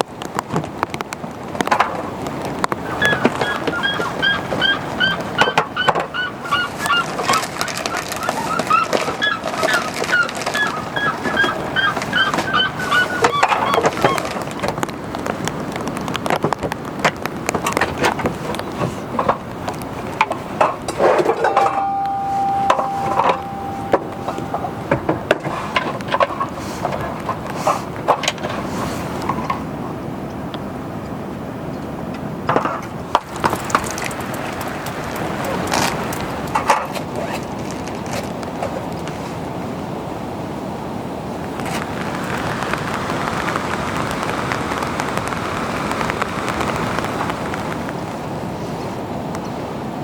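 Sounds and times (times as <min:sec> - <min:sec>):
wooden knocks and clinks: 0:20.2 - 0:27.4
steady pitched tone: 0:21.4 - 0:25.3
steady hiss: 0:41.6 - 0:48.8.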